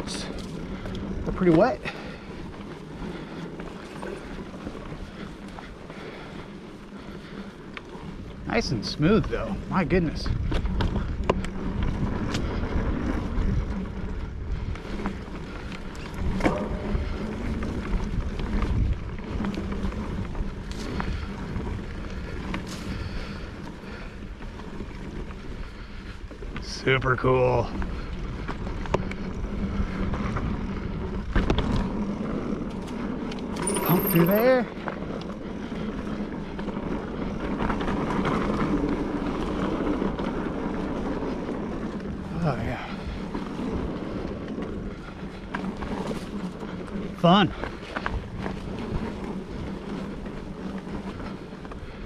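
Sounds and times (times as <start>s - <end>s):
bike clicks and rattles: 0.0s - 52.0s
tyre and wind noise: 0.0s - 52.0s.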